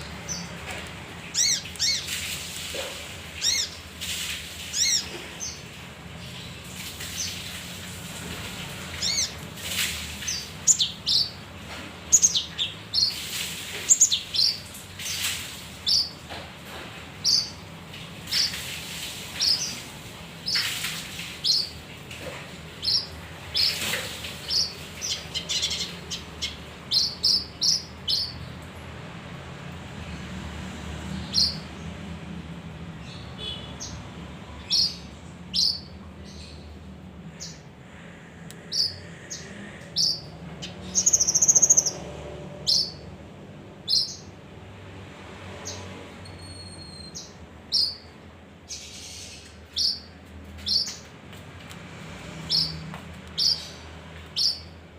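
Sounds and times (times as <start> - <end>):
songbird chirping: 8.9 - 16.3.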